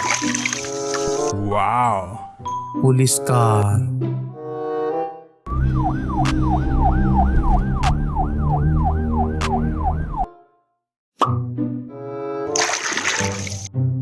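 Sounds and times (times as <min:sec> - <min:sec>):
police siren yelping: 0:05.5 - 0:10.3.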